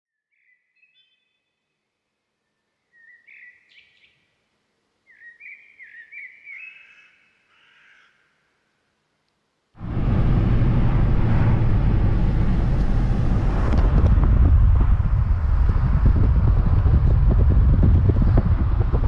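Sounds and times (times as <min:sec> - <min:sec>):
bird whistled chirps: 0:00.3 - 0:01.5, 0:02.8 - 0:04.2, 0:05.1 - 0:07.3.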